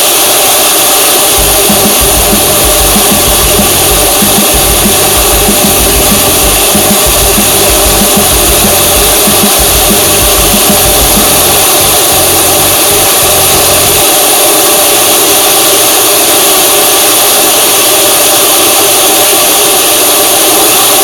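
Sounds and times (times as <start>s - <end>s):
low rumble: 1.4s - 14.0s
vehicle engine and road noise: 1.4s - 14.0s.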